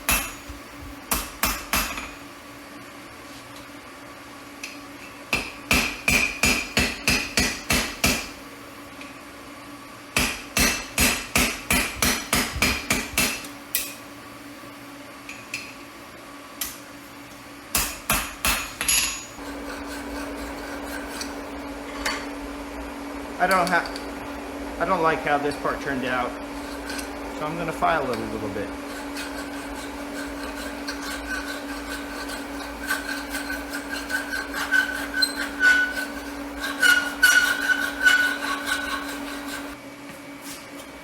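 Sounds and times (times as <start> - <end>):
hammer striking steel on anvil: 0.1 - 0.5, 1.1 - 2.2, 5.3 - 8.3, 10.2 - 14.0, 17.7 - 19.4
steady hum: 17.7 - 40.6.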